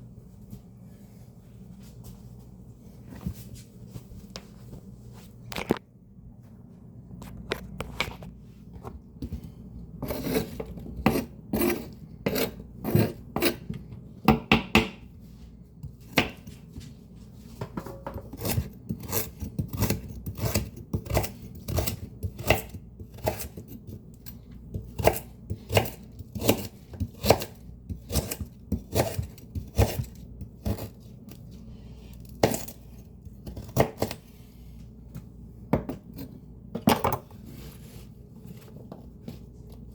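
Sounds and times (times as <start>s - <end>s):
knife chopping greens: 18.2s - 24.0s, 24.7s - 31.3s, 32.0s - 34.2s.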